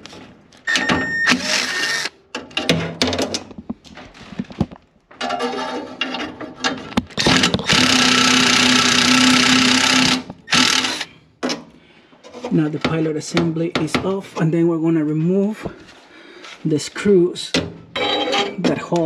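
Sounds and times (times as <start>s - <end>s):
power drill running: 1.3s - 2.1s, 7.2s - 11.1s.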